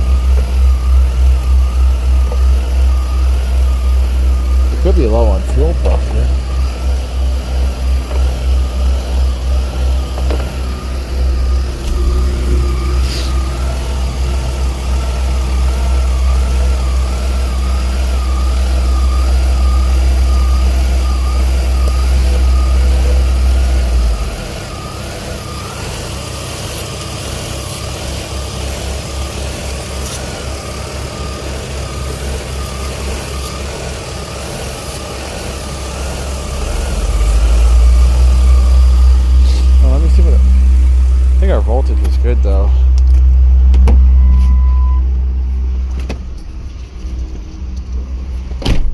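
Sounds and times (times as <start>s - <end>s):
car engine idling rough: 0.0s - 26.9s, 34.0s - 44.2s.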